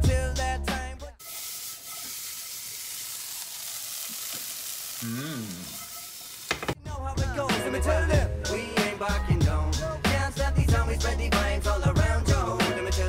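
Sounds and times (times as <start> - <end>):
hip-hop music with rapping: 0.0 - 1.2, 6.8 - 13.0
vegetables sizzling in frying pan: 1.2 - 6.8.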